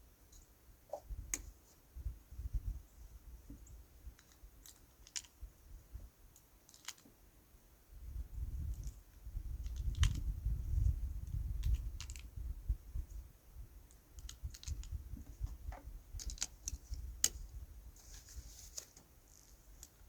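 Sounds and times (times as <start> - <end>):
rustling handling noise: 14.2 - 20.0.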